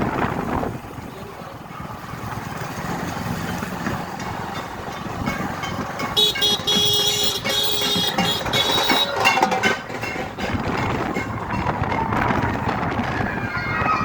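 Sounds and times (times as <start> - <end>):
street din: 0.0 - 14.0
loud horn blare: 5.2 - 11.7.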